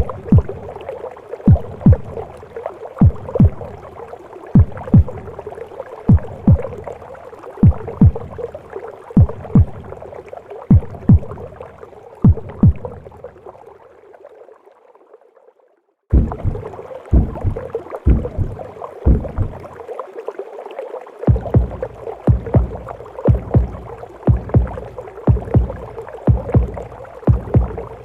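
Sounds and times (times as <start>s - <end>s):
heartbeat thumps: 0.0s - 0.7s, 1.5s - 2.3s, 3.0s - 3.8s, 4.6s - 5.4s, 6.1s - 6.9s, 7.6s - 8.5s, 9.2s - 10.0s, 10.7s - 11.5s, 12.2s - 13.0s, 16.1s - 19.7s, 21.3s - 28.0s
whooshing womb noise: 16.2s - 19.7s.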